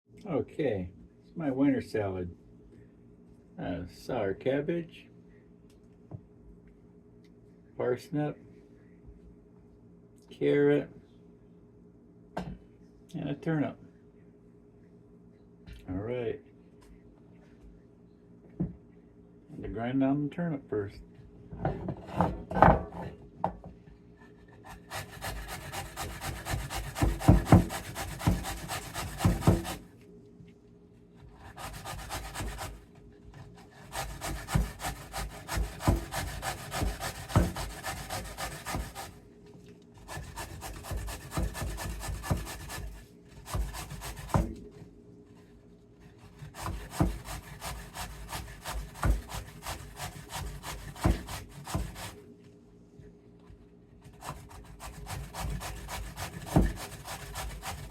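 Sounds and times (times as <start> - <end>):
vegetable rasping on grater: 24.7 - 29.8, 31.4 - 32.8, 33.6 - 39.2, 40.0 - 44.5, 46.1 - 52.2, 54.0 - 57.9.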